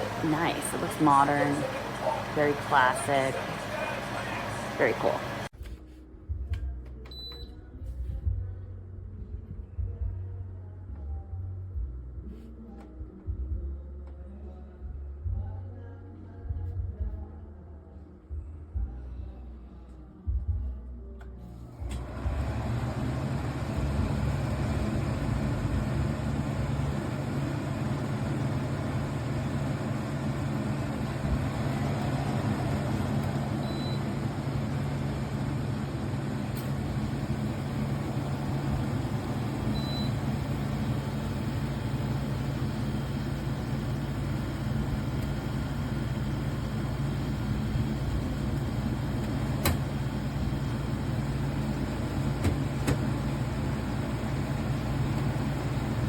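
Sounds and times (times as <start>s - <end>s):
air conditioner humming: 0.0s - 8.8s, 21.0s - 56.0s.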